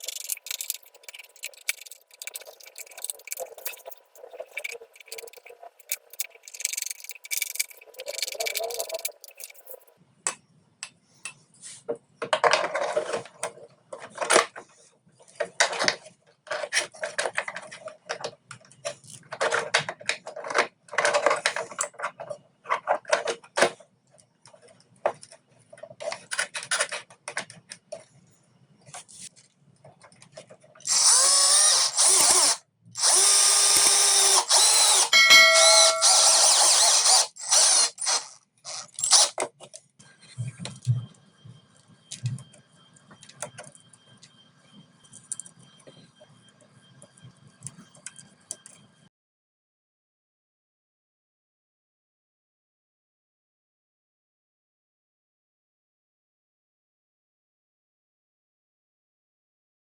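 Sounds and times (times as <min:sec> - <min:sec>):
power drill motor whine: 0:30.9 - 0:39.3.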